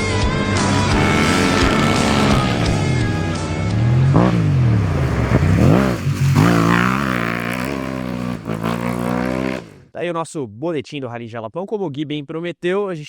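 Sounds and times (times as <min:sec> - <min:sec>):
background music: 0:00.0 - 0:08.1
engine revving: 0:00.0 - 0:09.9.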